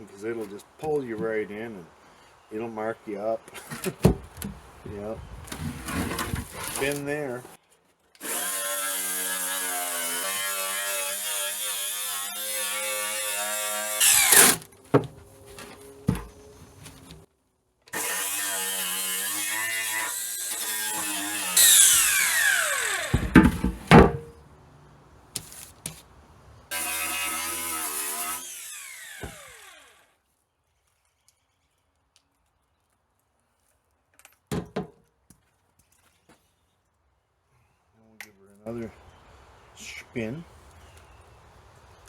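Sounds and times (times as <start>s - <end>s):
power drill wire brush on steel: 8.2s - 14.7s, 17.9s - 23.2s.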